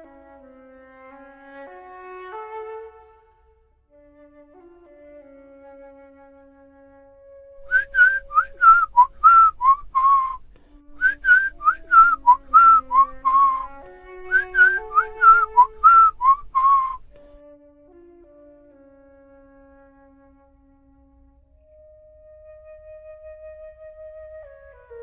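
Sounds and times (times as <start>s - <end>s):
soft woodwind music: 0.0s - 25.0s
whistled phrase of gliding notes: 7.6s - 17.4s.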